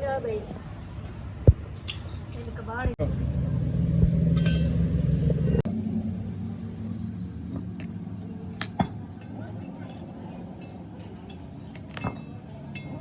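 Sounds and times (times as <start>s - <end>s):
low steady hum: 0.0s - 13.0s
metal tools clinking: 7.6s - 13.0s.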